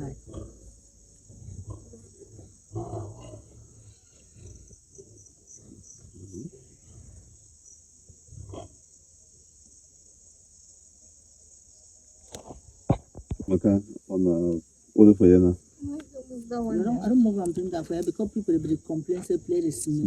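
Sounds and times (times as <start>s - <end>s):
crickets chirping: 0.0s - 20.0s
pigs grunting: 1.3s - 7.4s.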